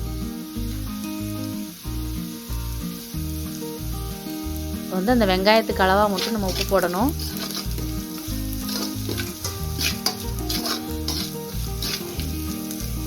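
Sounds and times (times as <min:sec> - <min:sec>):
music with repeating bass line: 0:00.0 - 0:13.0
onions sizzling in oil: 0:00.0 - 0:13.0
spoon scraping while stirring: 0:06.1 - 0:12.4.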